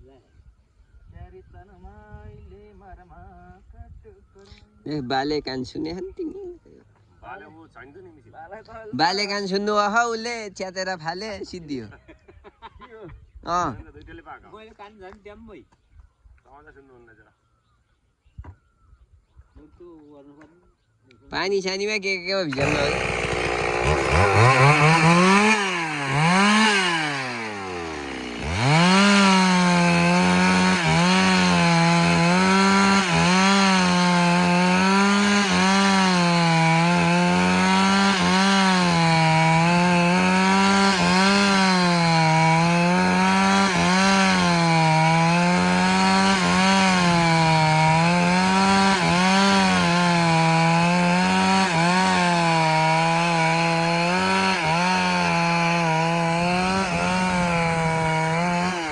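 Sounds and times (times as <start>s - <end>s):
chainsaw cutting a log: 22.5s - 58.9s.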